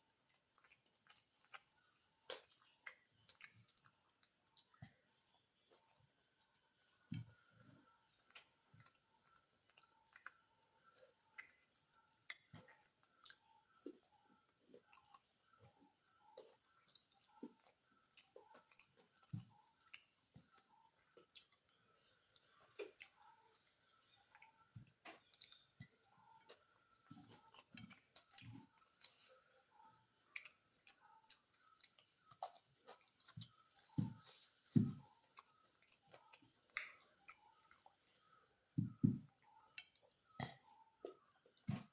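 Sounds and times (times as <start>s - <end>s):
wet chewing mouth clicks: 0.0s - 7.5s, 8.3s - 38.3s.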